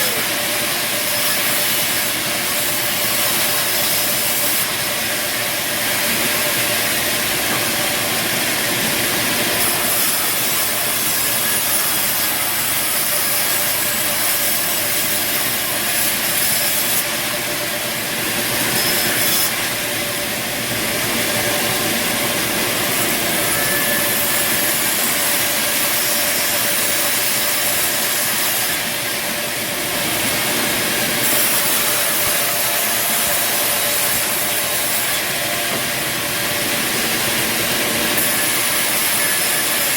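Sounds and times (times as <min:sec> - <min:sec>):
high hiss of saw cut: 0:00.0 - 0:19.6, 0:21.5 - 0:39.9
band sawmill cutting timber: 0:00.0 - 0:39.9.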